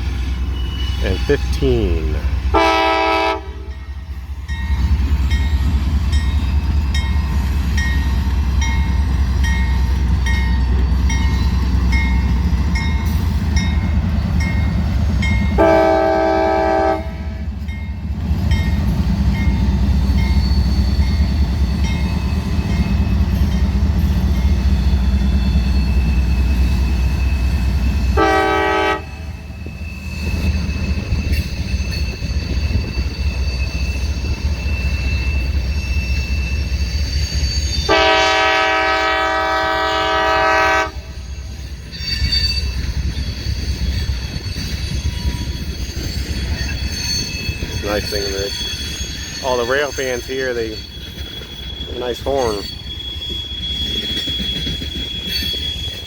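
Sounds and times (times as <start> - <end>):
locomotive rumble: 0.0 - 56.0
multi-chime air horn blasts: 0.9 - 3.7, 15.6 - 17.3, 28.2 - 29.2, 37.9 - 41.1.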